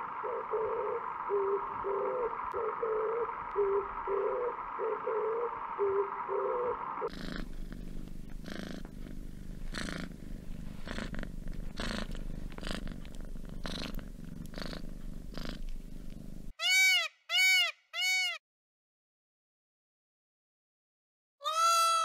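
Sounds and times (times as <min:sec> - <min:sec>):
cat purring: 0:07.0 - 0:16.5.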